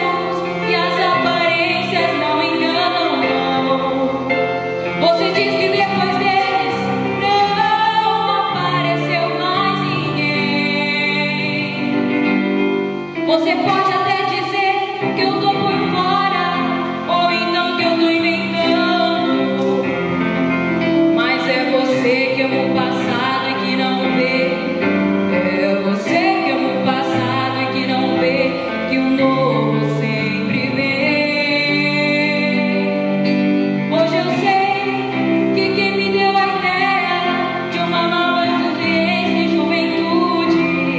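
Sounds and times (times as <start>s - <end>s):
woman singing with vibrato: 0.0s - 12.4s, 13.2s - 20.0s, 21.0s - 40.9s
instrumental accompaniment: 0.0s - 40.9s.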